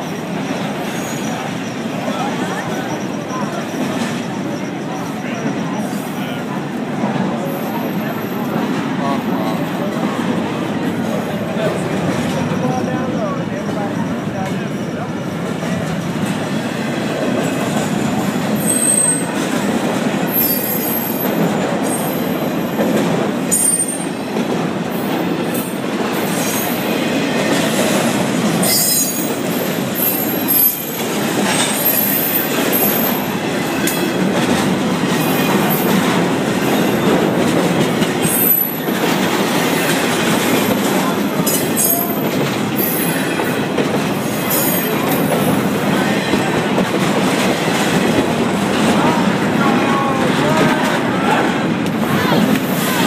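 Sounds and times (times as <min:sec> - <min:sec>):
train wheels rumbling on rails: 0:00.0 - 0:53.0
wheel squeals: 0:18.5 - 0:19.4, 0:28.6 - 0:34.2.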